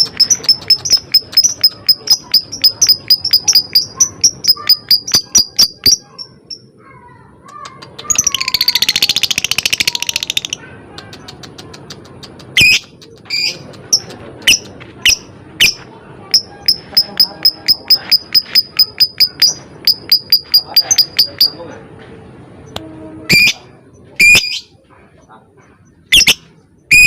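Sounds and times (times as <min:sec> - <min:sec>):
bird chirping: 0:00.0 - 0:06.7, 0:07.6 - 0:21.8, 0:25.7 - 0:27.0
bird rattling trill: 0:00.0 - 0:06.7, 0:13.4 - 0:21.6.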